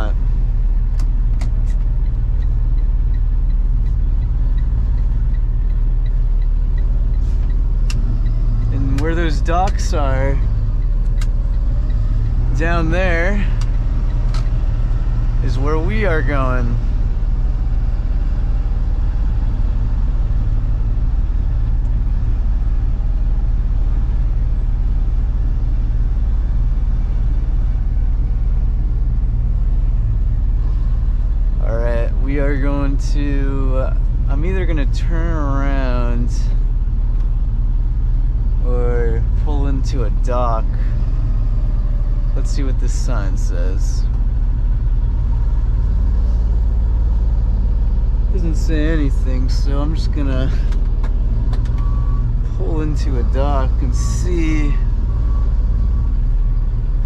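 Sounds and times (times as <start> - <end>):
faint regular ticking: 0.0 - 16.0
road rumble: 0.0 - 57.0
truck engine: 0.0 - 57.0.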